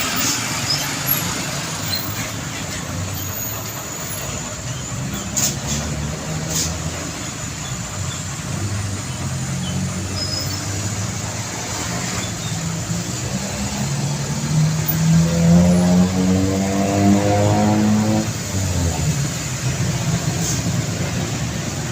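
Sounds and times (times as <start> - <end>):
truck engine running: 0.0 - 15.1.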